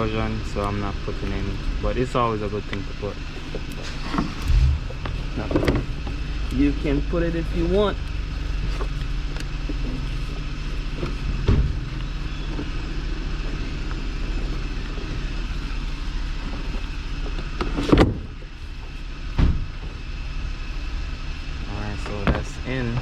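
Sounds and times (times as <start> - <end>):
low hum: 0.0 - 23.0
clunks and knocks under car hood: 11.0 - 12.7, 17.2 - 18.4.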